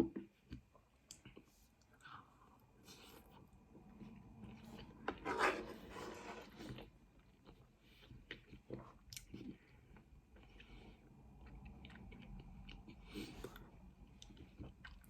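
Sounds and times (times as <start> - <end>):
person chewing noodles: 7.2 - 15.0.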